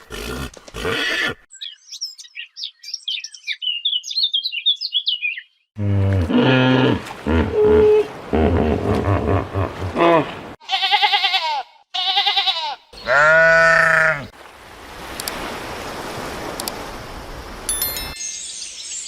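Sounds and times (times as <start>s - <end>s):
animal bleating: 10.6s - 14.3s.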